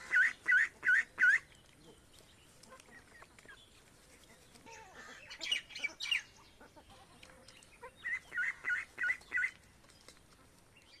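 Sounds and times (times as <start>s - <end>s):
fowl calling: 7.8s - 9.6s.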